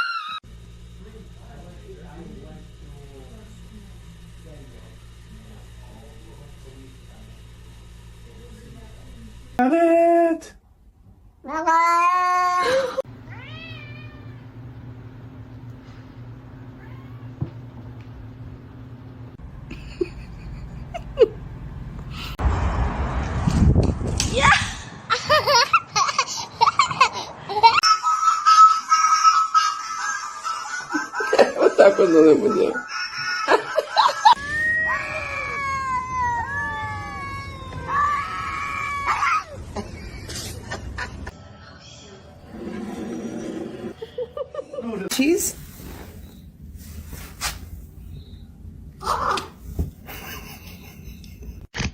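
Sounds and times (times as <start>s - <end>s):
cat yowling: 0.0s - 0.4s, 13.3s - 14.4s, 16.8s - 17.3s, 27.8s - 39.6s
steady low hum: 0.4s - 11.6s, 12.6s - 27.8s, 43.8s - 51.7s
cat meowing: 13.3s - 14.4s, 34.4s - 39.6s.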